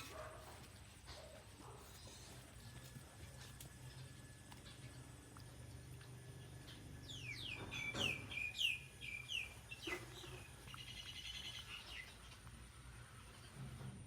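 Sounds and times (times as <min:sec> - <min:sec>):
songbird singing: 0:06.2 - 0:13.6.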